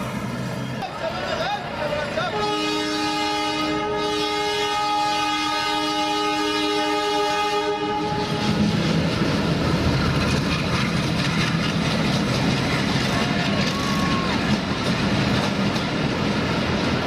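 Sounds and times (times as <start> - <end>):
train rumbling past: 0.0 - 17.0
train horn blast: 2.3 - 9.0.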